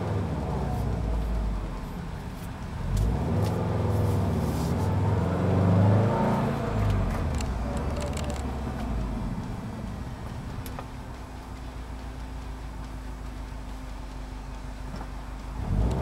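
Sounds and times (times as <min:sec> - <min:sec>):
turbocharged car engine revving: 0:00.0 - 0:16.0.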